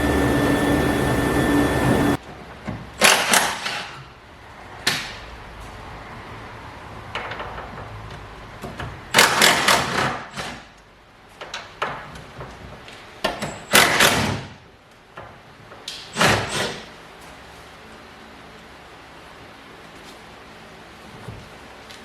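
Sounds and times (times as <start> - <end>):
car body parts scraping and clunking: 7.0 - 17.4.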